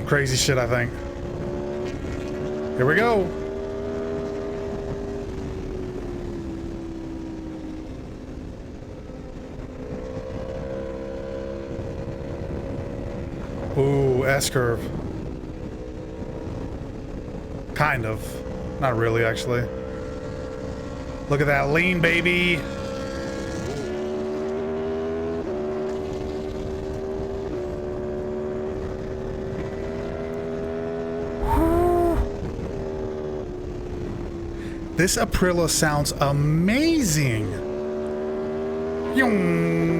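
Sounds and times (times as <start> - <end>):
motorcycle engine at speed: 0.0 - 39.9
rushing wind: 31.2 - 35.0.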